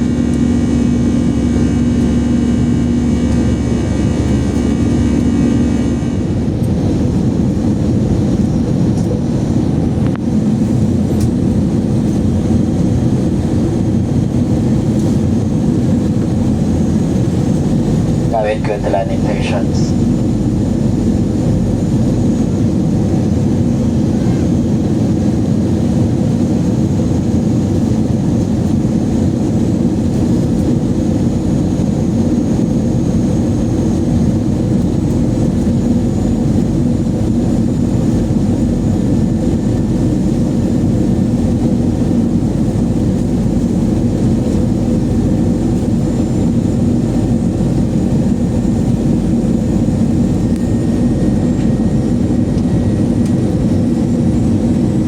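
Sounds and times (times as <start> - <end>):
jet engine rumble: 0.0 - 55.0.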